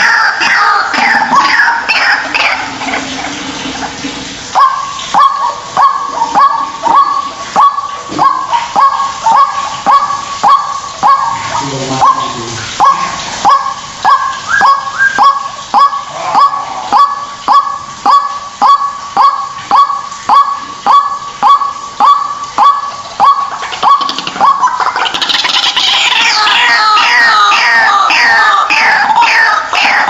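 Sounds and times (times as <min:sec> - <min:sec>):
waterhen calling: 0:00.0 - 0:30.0.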